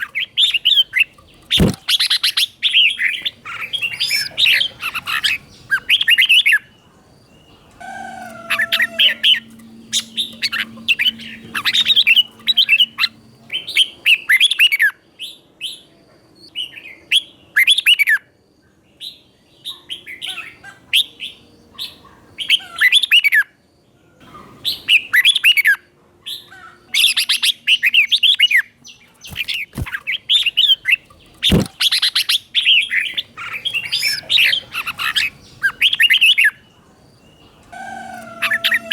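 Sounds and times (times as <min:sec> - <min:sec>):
bulbul singing warbled phrases: 0:00.0 - 0:13.7, 0:29.2 - 0:38.9.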